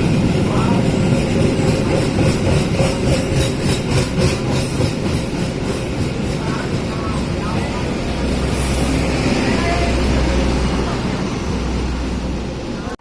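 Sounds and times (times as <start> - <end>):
rhythmic wheel clacks: 0.0 - 8.6
train rumbling on rails: 0.0 - 13.0.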